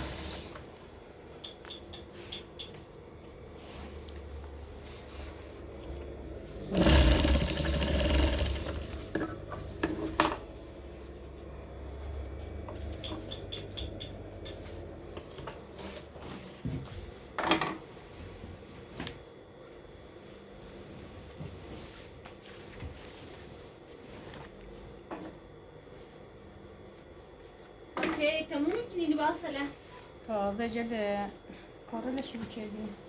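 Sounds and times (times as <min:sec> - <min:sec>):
electric sewing machine stitching: 0:06.4 - 0:09.2.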